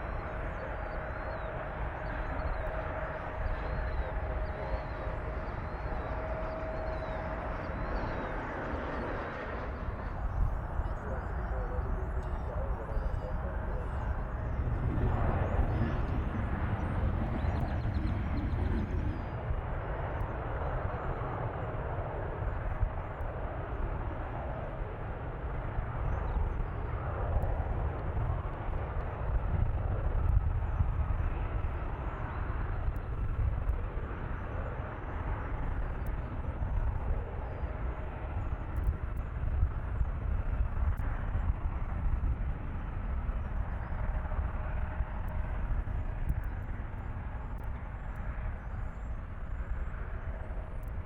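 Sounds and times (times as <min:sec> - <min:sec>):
jet engines rumbling: 0:08.3 - 0:19.7.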